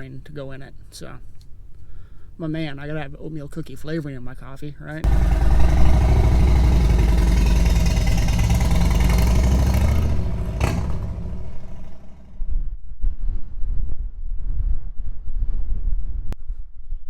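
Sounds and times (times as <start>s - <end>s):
vehicle engine humming: 5.0s - 12.4s
wind gusts on microphone: 12.0s - 17.0s.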